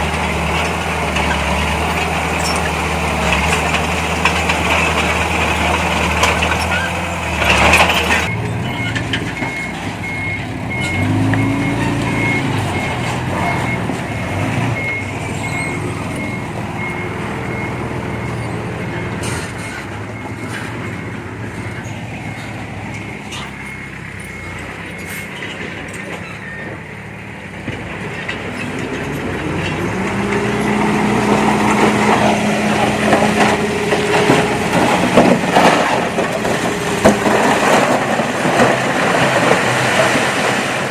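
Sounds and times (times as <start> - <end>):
diesel machinery engine running: 0.0 - 40.9
reversing alarm beeping: 8.1 - 25.4.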